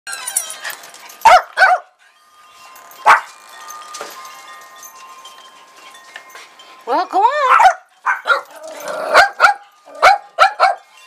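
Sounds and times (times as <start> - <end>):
small dogs barking: 1.2 - 1.9, 3.0 - 3.3, 7.4 - 10.9.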